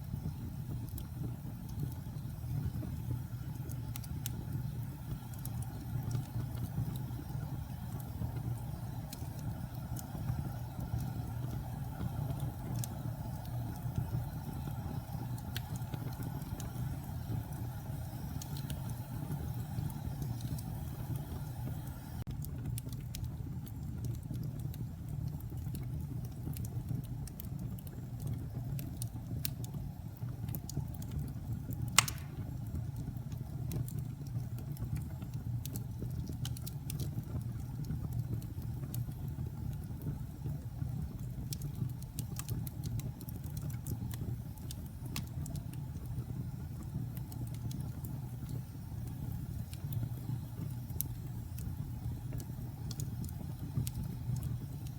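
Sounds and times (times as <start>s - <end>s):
wood fire burning: 0.0s - 54.9s
loud fire pop: 32.0s - 32.5s.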